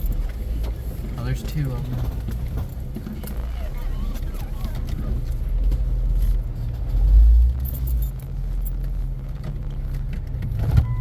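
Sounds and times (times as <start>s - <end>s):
off-road vehicle engine rumbling: 0.0s - 11.0s.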